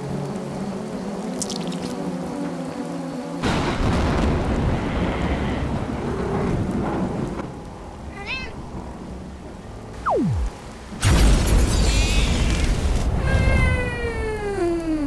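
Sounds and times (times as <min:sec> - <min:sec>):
thunderclap with rumble: 0:03.4 - 0:11.6
cat meow: 0:08.1 - 0:08.6
falling whistle: 0:10.0 - 0:10.6.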